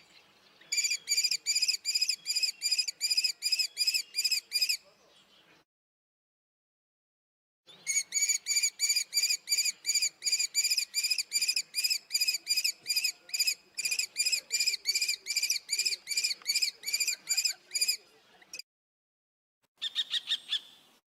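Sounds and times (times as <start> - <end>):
kestrel calling: 0.7 - 4.8, 7.8 - 18.0, 19.8 - 20.8.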